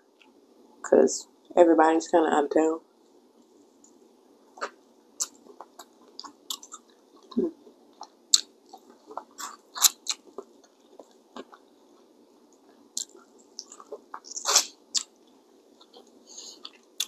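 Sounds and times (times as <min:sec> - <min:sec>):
wet chewing and mouth smacks: 0:04.6 - 0:17.0.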